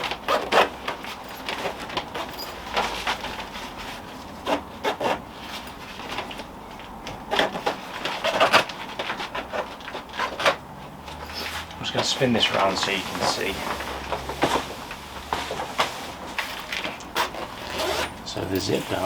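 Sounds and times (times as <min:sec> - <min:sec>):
zip being pulled closed: 0:11.2 - 0:19.0.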